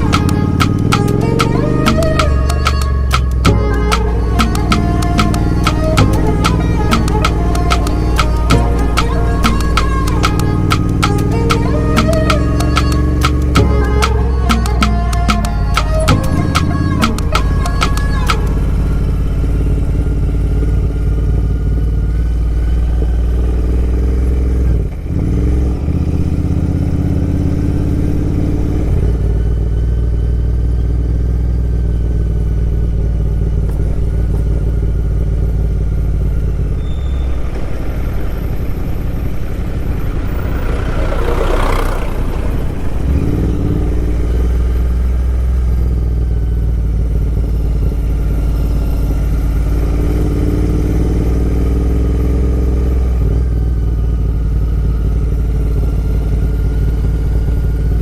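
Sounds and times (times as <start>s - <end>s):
motorcycle engine running: 0.0s - 58.0s
short rushing noise: 39.5s - 44.8s.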